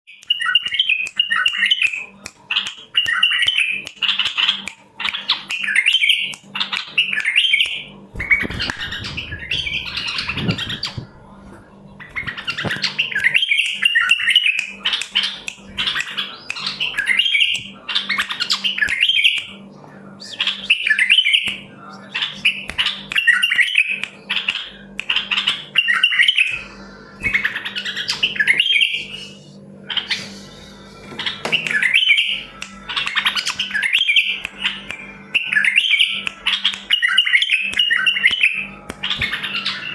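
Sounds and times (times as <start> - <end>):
bulbuls singing warbled phrases: 0.3 - 39.9
low rumbling noise: 8.2 - 12.8.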